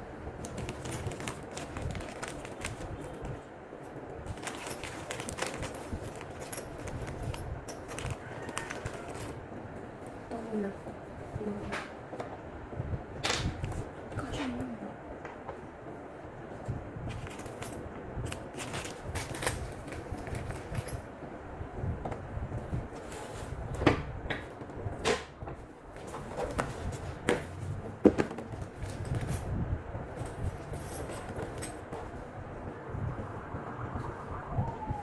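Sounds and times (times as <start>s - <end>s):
clicks and knocks of handling: 4.3s - 9.4s
low rumble: 32.2s - 35.0s.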